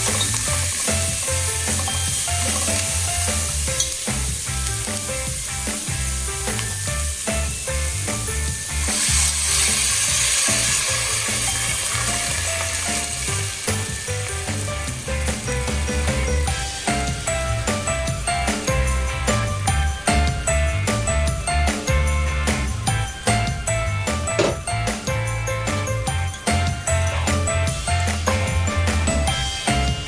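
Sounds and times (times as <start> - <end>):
spatula stirring: 0.0 - 4.9
vegetables sizzling in a pot: 0.0 - 23.7
background music with steady beat: 0.0 - 30.0.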